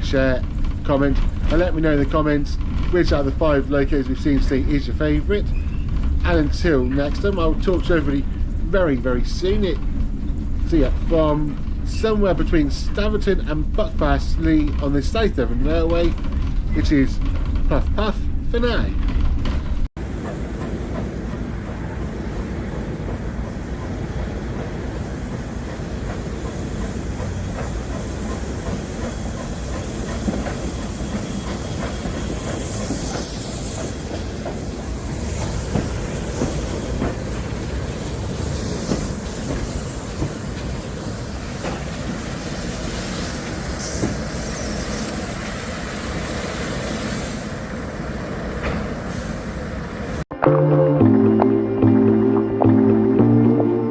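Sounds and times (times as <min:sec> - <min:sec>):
train wheels clickety-clack on rails: 0:00.1 - 0:50.2
high wheel squeal: 0:24.8 - 0:41.4, 0:42.5 - 0:45.8.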